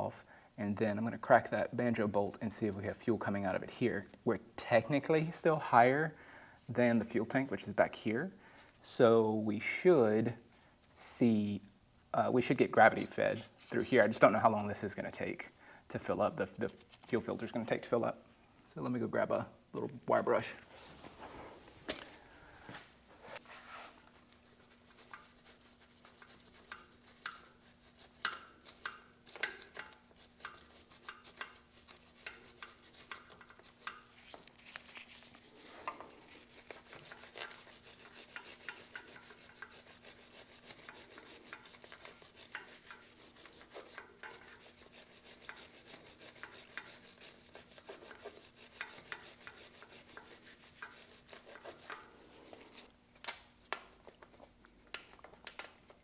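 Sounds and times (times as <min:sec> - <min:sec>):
faint steady hum: 0:00.0 - 0:56.0
wire brush scrubbing metal: 0:24.5 - 0:52.2.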